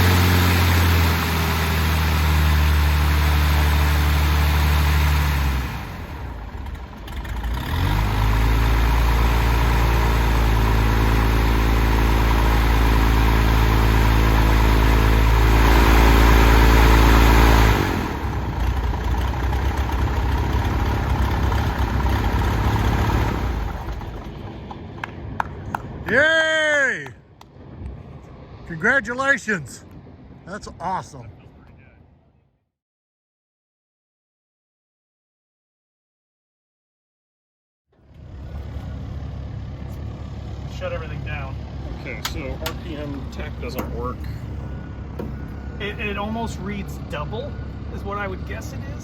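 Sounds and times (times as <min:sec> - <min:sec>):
piston aircraft engine and propeller: 0:00.0 - 0:26.2, 0:38.0 - 0:49.0.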